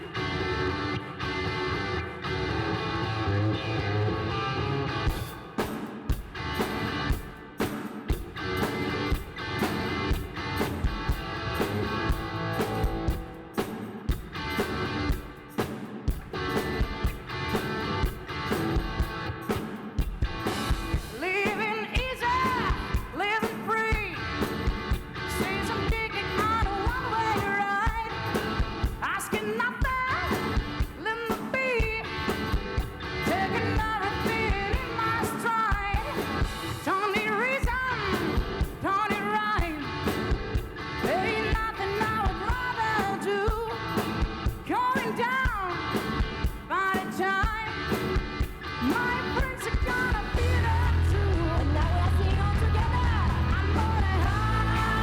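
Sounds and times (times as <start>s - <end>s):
rock band playing: 0.0s - 55.0s
person singing lead vocals: 21.0s - 24.6s, 25.2s - 40.3s, 40.9s - 48.1s, 48.7s - 55.0s.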